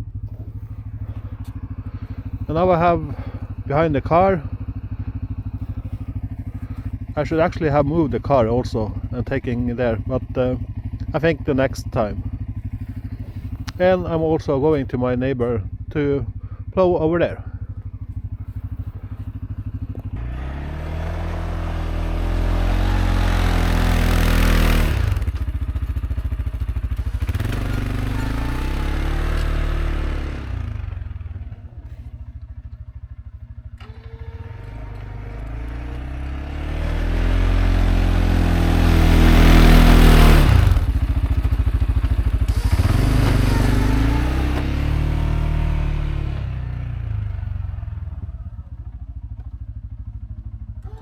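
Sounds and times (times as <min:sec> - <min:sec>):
quad bike engine revving: 0:00.0 - 0:51.0.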